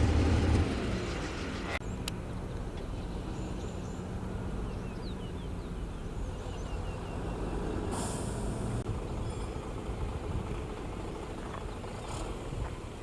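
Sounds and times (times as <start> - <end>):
diesel engine rumbling: 0.0 - 13.0
small birds chirping: 1.8 - 8.0.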